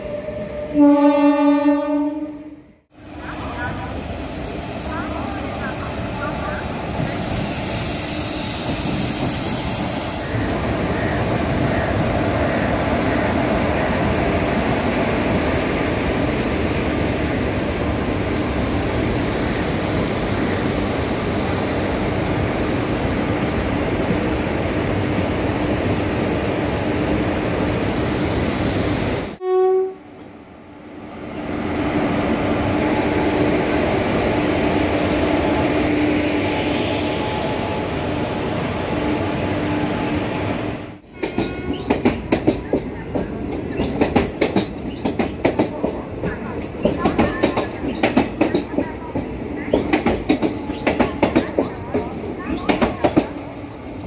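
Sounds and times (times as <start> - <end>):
short train horn toot: 0.8 - 2.6, 29.4 - 30.1, 41.1 - 41.9
train wheels rumbling on rails: 3.2 - 29.2, 41.0 - 54.0.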